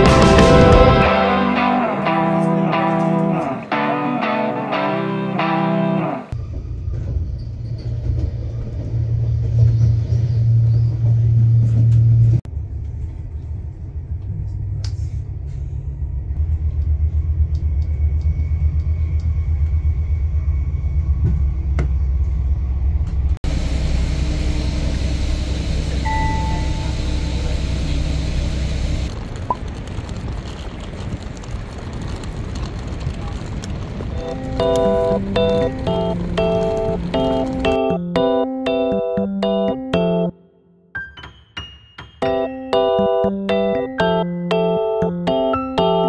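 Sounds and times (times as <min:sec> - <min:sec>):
train rumbling inside carriage: 0:00.0 - 0:01.3, 0:06.3 - 0:37.9
bus running from inside: 0:00.0 - 0:01.4, 0:06.3 - 0:38.2
short beep: 0:26.0 - 0:27.6.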